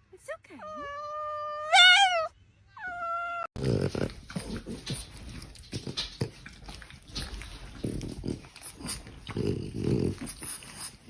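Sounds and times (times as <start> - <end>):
cat meowing: 0.8 - 3.6
dog growling and grunting: 3.4 - 6.6, 7.7 - 11.0.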